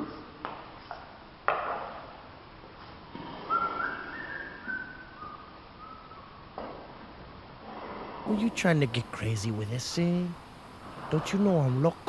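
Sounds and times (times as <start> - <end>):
person whistling a tune: 3.5 - 6.0.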